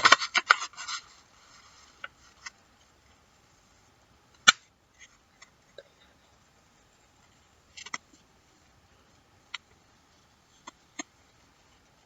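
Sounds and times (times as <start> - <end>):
paper rustling: 0.0 - 3.0.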